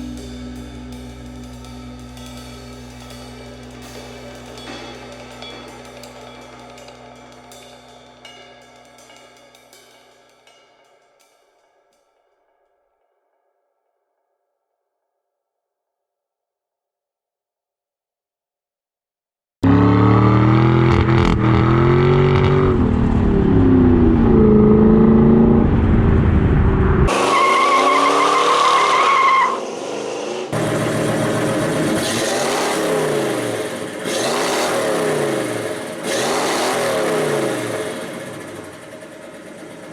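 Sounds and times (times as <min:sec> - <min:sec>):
steady high whine: 0:00.0 - 0:10.5, 0:30.4 - 0:39.9
car engine revving: 0:19.6 - 0:39.9.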